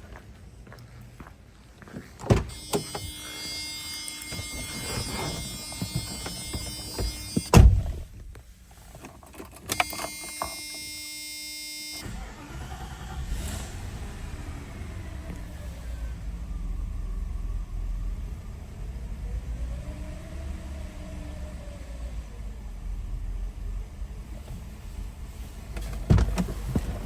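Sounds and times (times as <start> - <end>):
car door thud: 2.2 - 3.2, 4.2 - 8.3, 25.8 - 27.0.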